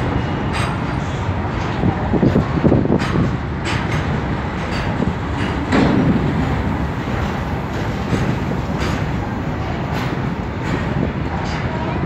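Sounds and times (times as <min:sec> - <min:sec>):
train wheels rumbling: 0:00.0 - 0:12.0
wheels clicking over rail joints: 0:00.0 - 0:12.0.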